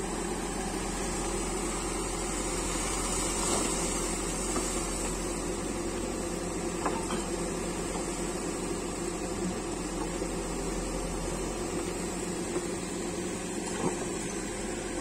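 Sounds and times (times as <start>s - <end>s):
backhoe diesel engine running: 0.0s - 15.0s.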